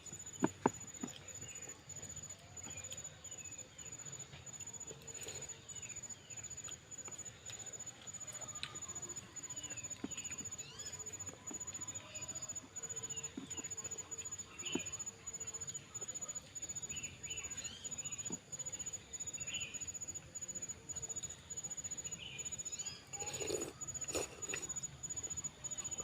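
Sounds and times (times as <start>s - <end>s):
wet chewing: 0.0s - 26.0s.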